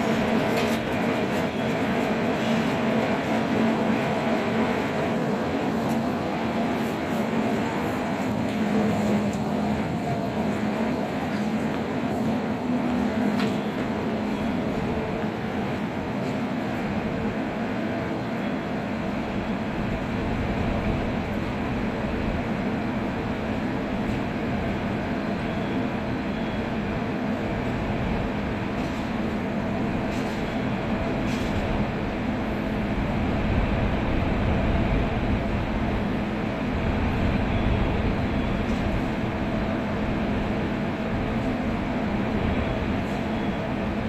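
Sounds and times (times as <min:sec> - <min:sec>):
train rumbling at platform: 0:00.0 - 0:44.0.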